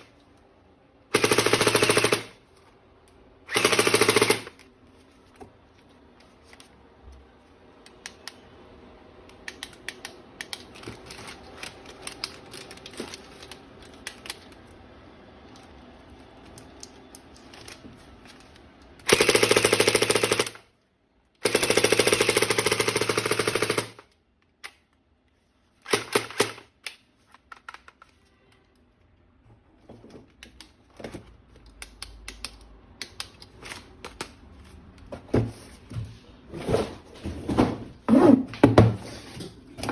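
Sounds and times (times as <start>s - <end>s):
toy gun rapid-fire bursts: 1.1s - 2.4s, 3.5s - 4.6s, 19.0s - 20.7s, 21.4s - 24.1s, 25.8s - 26.7s
plastic toy gun clicks and rattles: 9.3s - 14.7s, 25.8s - 28.2s.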